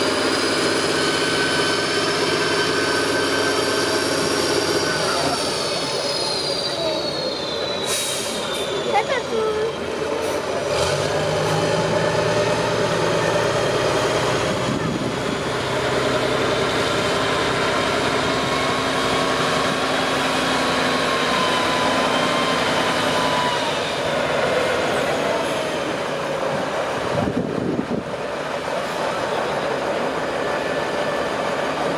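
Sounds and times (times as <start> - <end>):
diesel engine running at low revs: 10.0 - 31.9.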